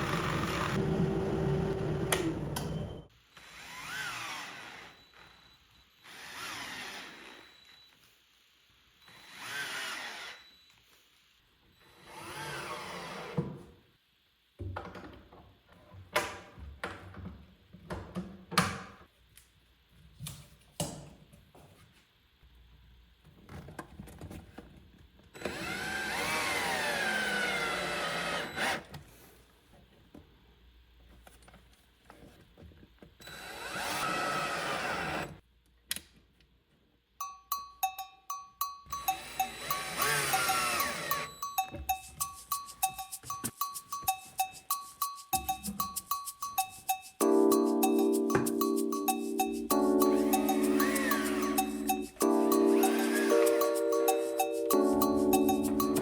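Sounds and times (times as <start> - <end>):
cordless drill motor whine: 0.0 - 7.9, 9.1 - 10.8, 25.4 - 28.8, 39.1 - 41.3.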